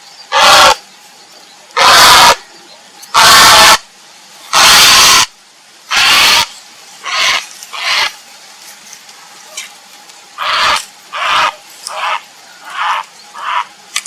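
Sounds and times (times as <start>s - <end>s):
heron harsh rasping calls: 0.3s - 0.8s, 1.8s - 2.4s, 3.2s - 3.8s, 4.5s - 5.3s, 5.9s - 8.1s, 10.4s - 13.7s.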